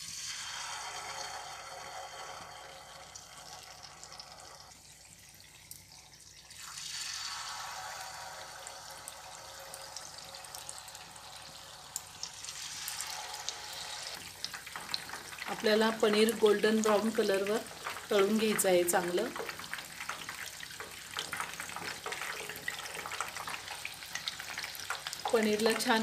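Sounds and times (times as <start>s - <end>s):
food deep-frying in oil: 0.0s - 26.0s
oil crackles: 14.1s - 26.0s.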